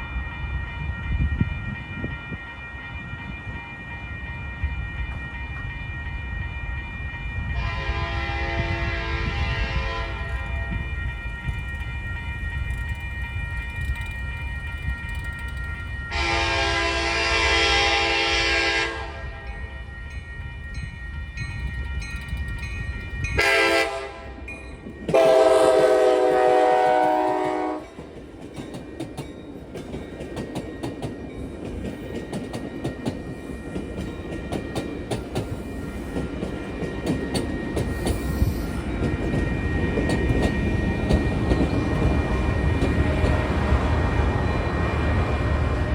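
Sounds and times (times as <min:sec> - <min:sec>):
low rumble of train: 0:00.0 - 0:45.9
railroad crossing bell ringing: 0:00.0 - 0:45.9
train horn blasts: 0:07.4 - 0:10.9, 0:16.1 - 0:19.7, 0:23.3 - 0:24.5, 0:25.1 - 0:28.0.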